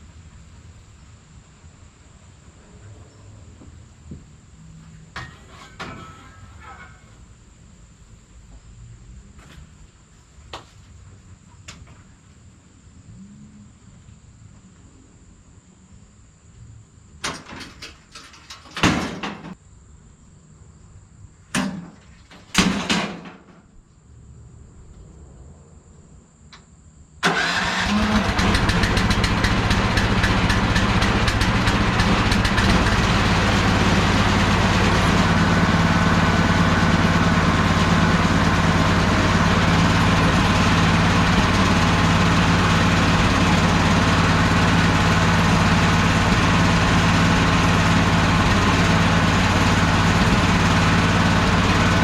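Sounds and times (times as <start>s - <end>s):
sawmill gas engine running: 27.2s - 52.0s.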